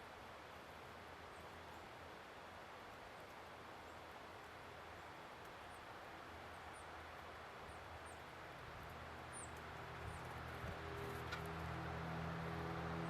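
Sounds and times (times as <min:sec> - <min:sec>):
steady outdoor hiss: 0:00.0 - 0:13.0
vehicle engine hum: 0:09.0 - 0:13.0.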